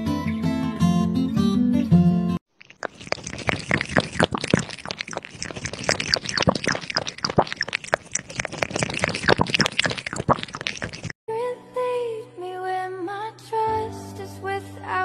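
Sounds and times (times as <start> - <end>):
water trickling and splashing: 2.5 - 11.2.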